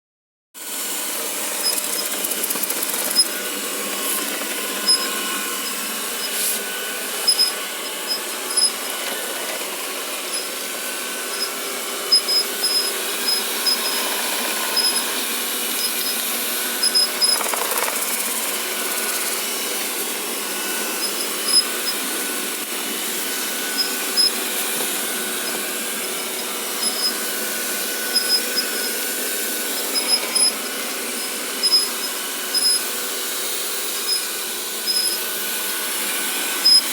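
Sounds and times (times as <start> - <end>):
vacuum cleaner running: 0.6 - 36.9
high-pitched squeaks: 4.0 - 9.0.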